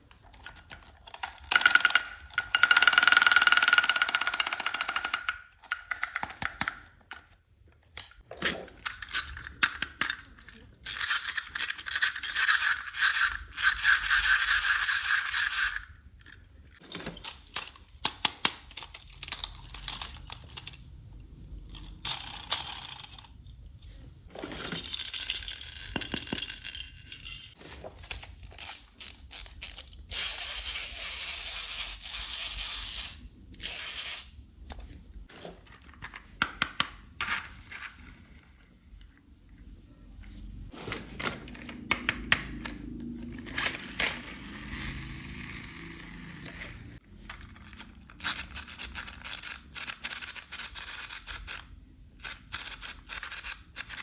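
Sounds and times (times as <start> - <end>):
plastic toy pieces clicking: 0.1 - 7.4, 8.0 - 20.8, 21.8 - 23.4, 24.6 - 34.3, 47.3 - 54.0.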